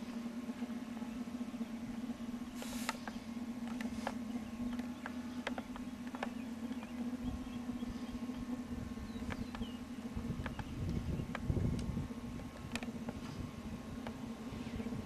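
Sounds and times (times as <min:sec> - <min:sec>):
rc plane motor hum: 0:00.0 - 0:15.0
sharp ticks: 0:02.5 - 0:07.2, 0:09.2 - 0:13.4
wind rumble on microphone: 0:03.6 - 0:15.0.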